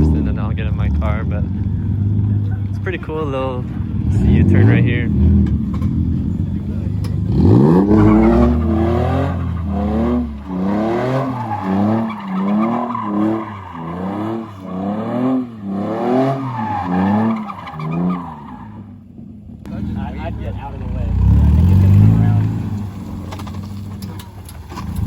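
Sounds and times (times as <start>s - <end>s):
car engine revving: 0.0s - 25.0s
tyre squeal: 7.1s - 19.0s.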